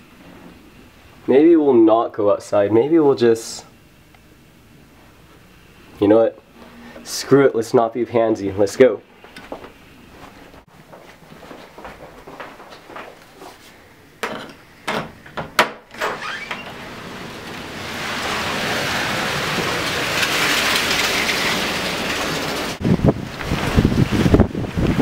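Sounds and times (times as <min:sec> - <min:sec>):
door opening knocks and clicks: 0:14.2 - 0:16.8
strong wind rushing: 0:22.6 - 0:25.0
wind buffeting microphone: 0:22.8 - 0:25.0.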